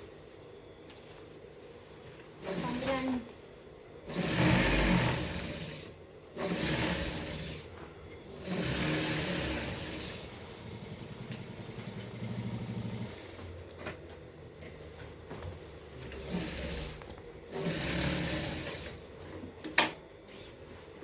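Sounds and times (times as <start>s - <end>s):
sewing machine running: 2.4s - 3.2s, 4.0s - 13.2s, 16.0s - 19.0s.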